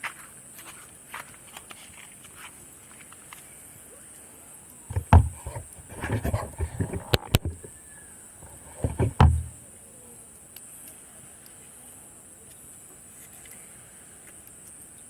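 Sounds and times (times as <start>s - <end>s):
heavy thump: 4.9s - 7.7s, 8.4s - 9.6s
knocks and clatters: 4.9s - 7.7s, 8.4s - 9.6s.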